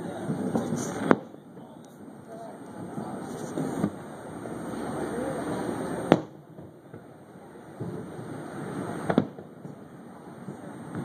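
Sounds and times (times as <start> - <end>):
low background noise: 0.0 - 11.0
firework shell bang: 0.2 - 1.4, 6.1 - 7.1, 9.0 - 9.8.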